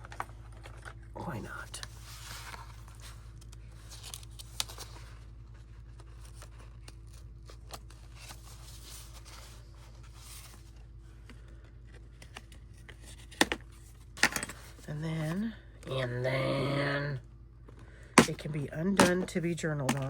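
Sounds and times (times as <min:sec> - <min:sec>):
steady low hum: 0:00.0 - 0:20.0
paper rustling: 0:01.8 - 0:15.4.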